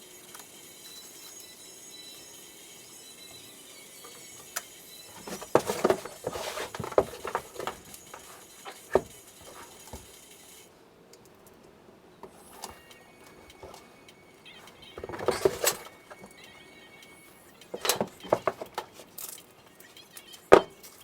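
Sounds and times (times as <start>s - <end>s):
sharp knocks clicks and scrapes: 5.1s - 10.2s, 12.2s - 13.9s, 14.6s - 16.4s, 17.7s - 19.4s.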